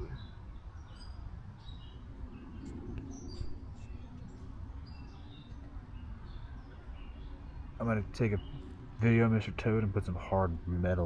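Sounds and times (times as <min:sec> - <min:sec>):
wind rumble on microphone: 0:00.0 - 0:07.7
small birds chirping: 0:00.0 - 0:11.0.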